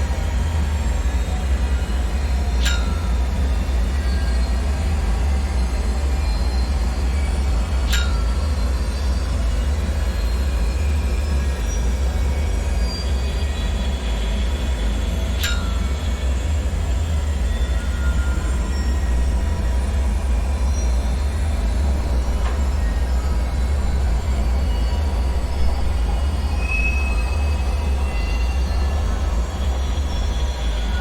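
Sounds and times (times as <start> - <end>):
sharp ringing clinks: 2.6 - 3.4, 7.9 - 9.0, 15.4 - 16.5, 17.2 - 31.0
deep rumbling drone: 15.2 - 31.0.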